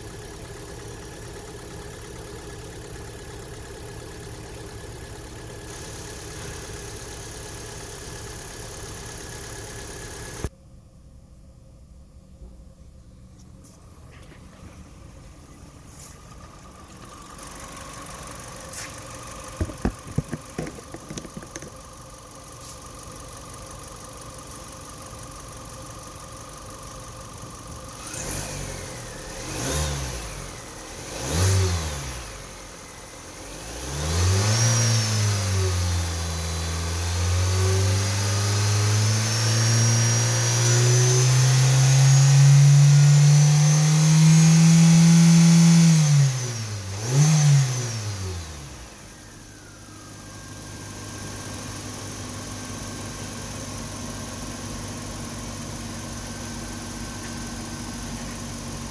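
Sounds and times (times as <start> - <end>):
car engine revving: 28.0 - 49.8.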